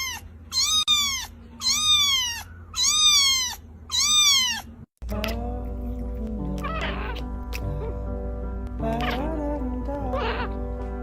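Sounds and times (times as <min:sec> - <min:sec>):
cat meowing: 0:00.0 - 0:04.8, 0:06.6 - 0:07.3, 0:08.9 - 0:09.3, 0:10.1 - 0:10.6
music: 0:05.0 - 0:11.0.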